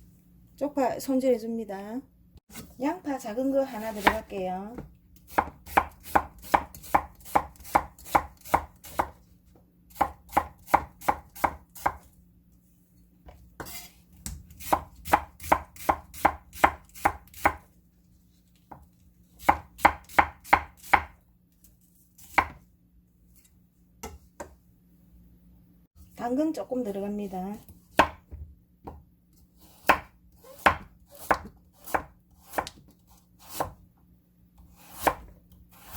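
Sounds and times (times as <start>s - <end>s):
knife slicing onion on board: 3.8s - 9.2s, 9.9s - 12.1s, 13.3s - 17.6s, 19.4s - 21.2s, 22.2s - 22.6s, 27.6s - 33.8s, 34.6s - 35.9s.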